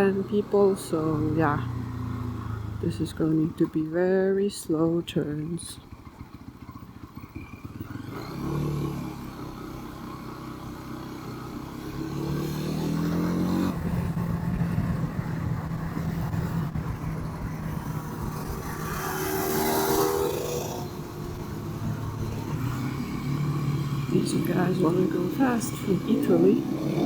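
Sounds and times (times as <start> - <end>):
motorcycle engine: 0.0 - 27.0
rush of wind: 13.5 - 23.7.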